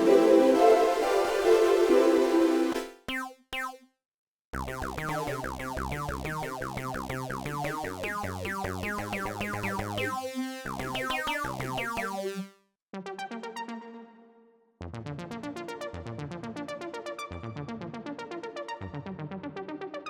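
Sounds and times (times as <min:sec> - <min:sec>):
synthesizer quick short notes: 0:02.7 - 0:03.8
synthesizer repeating notes: 0:02.7 - 0:03.8, 0:04.6 - 0:12.5
synth bass line: 0:03.0 - 0:03.8, 0:04.6 - 0:12.5.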